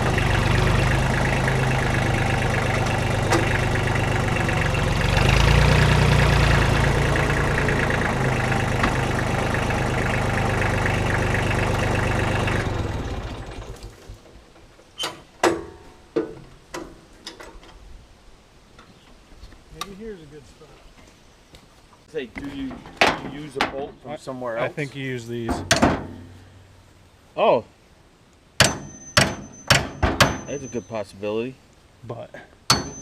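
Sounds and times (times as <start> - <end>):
diesel tractor engine running: 0.0 - 14.3, 32.7 - 33.0
sharp metal clanks: 28.6 - 31.0, 32.7 - 33.0.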